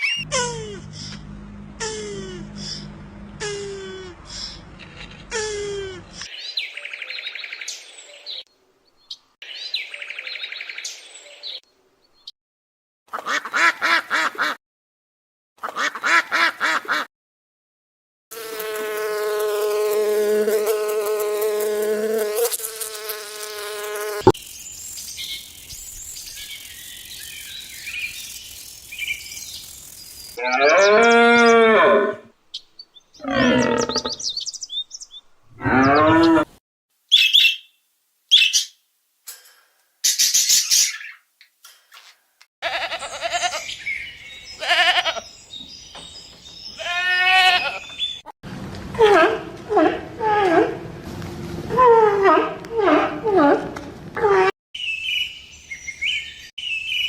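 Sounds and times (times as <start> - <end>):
animal calls: 35.6 - 36.5
high animal chirps: 37.1 - 38.8.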